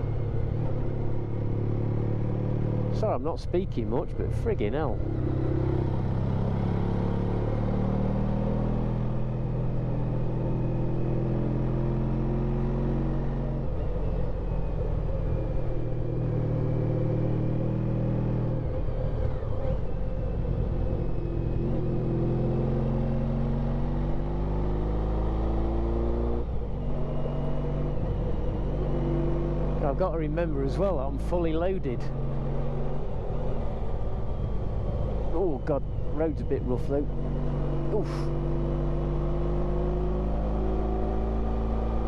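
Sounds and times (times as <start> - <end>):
wind and road noise: 0.0 - 42.0
motorcycle engine revving: 4.4 - 42.0.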